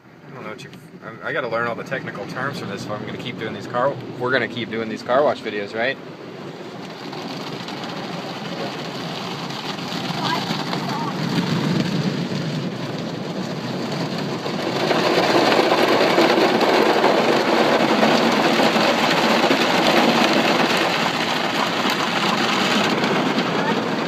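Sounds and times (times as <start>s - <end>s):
car wash brushes and water spray: 1.3s - 24.0s.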